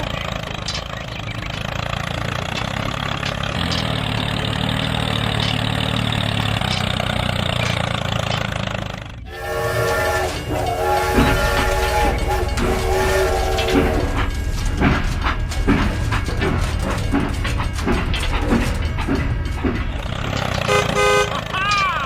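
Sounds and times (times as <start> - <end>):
small engine running: 0.0 - 22.0
multi-tone horn: 9.3 - 14.3, 20.7 - 21.4.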